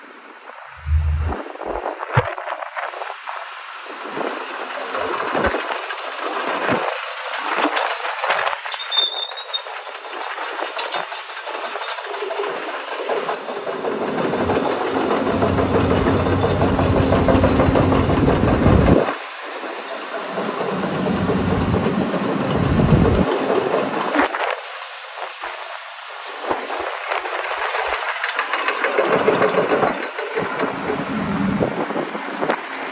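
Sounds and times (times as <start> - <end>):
excavator clattering engine: 9.8 - 19.2, 19.8 - 24.0, 27.2 - 31.7.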